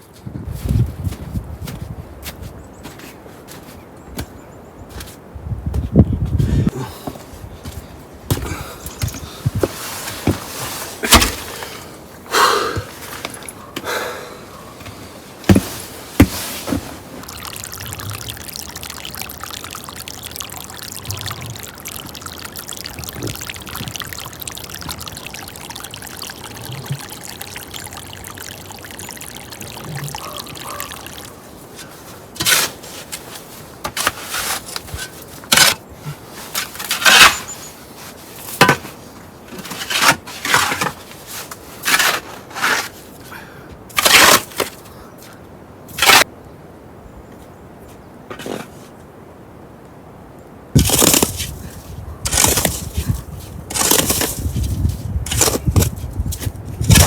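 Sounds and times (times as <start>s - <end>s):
water pouring: 15.4s - 33.0s, 33.6s - 35.8s, 36.4s - 37.6s, 50.8s - 57.0s.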